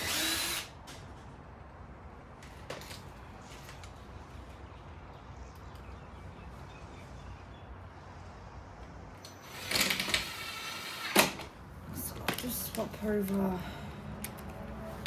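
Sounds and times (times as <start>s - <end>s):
power drill motor whine: 0.0s - 0.7s, 9.3s - 11.4s
low background hum: 0.0s - 15.0s.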